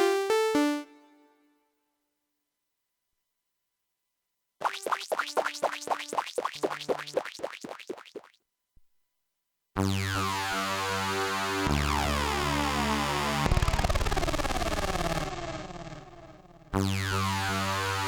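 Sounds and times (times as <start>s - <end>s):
synthesizer plucked notes: 0.0s - 1.4s, 4.6s - 7.3s.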